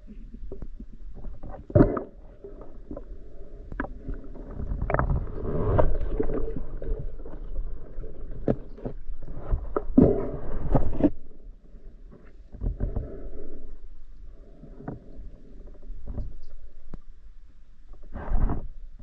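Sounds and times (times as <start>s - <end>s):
water sloshing and splashing: 1.1s - 11.4s
low wash of water: 4.0s - 10.8s.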